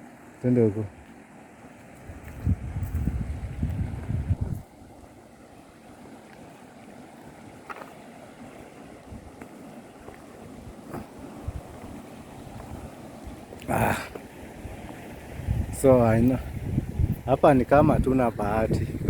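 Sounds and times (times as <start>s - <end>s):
wind rushing on microphone: 2.0s - 5.1s, 10.6s - 19.0s.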